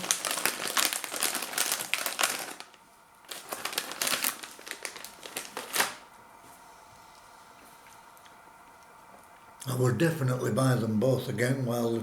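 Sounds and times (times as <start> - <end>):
snack packet crinkling: 0.0 - 6.1.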